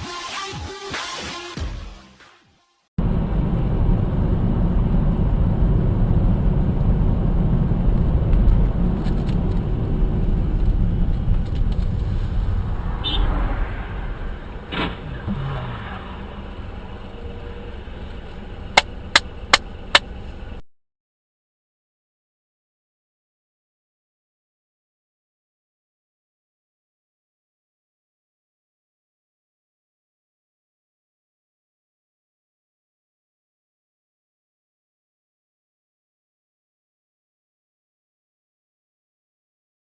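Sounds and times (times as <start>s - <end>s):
engine and road noise: 3.0s - 20.6s.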